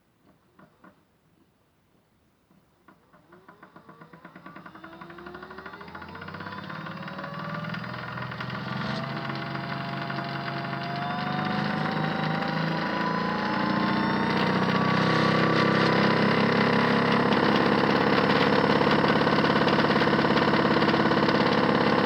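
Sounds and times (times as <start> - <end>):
toy washing machine motor whine: 3.3 - 22.0.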